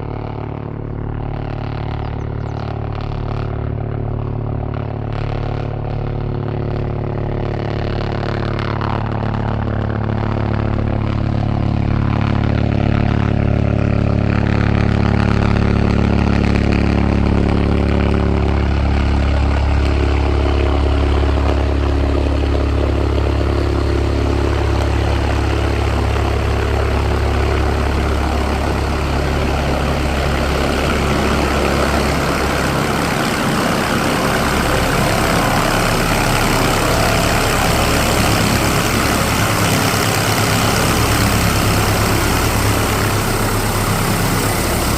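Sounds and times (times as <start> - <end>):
helicopter engine drone: 0.0 - 44.9
broad rushing noise: 18.6 - 44.9.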